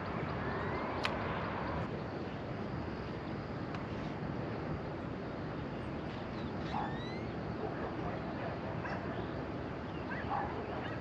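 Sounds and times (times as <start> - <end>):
steady wind: 0.0 - 11.0.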